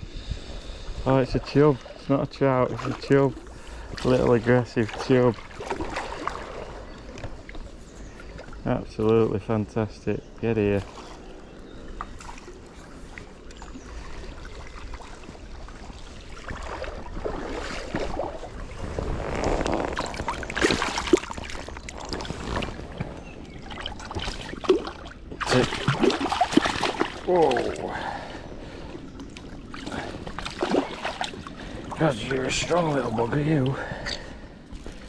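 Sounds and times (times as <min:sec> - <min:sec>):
fish splashing in water: 0:10.8 - 0:28.5, 0:29.1 - 0:32.4.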